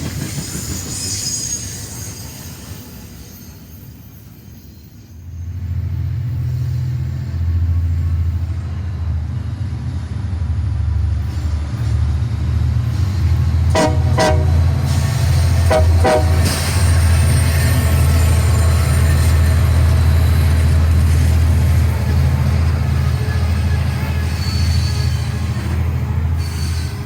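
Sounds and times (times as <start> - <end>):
train rumbling past: 0.0 - 27.0
train horn toots: 13.7 - 15.0, 15.6 - 17.1.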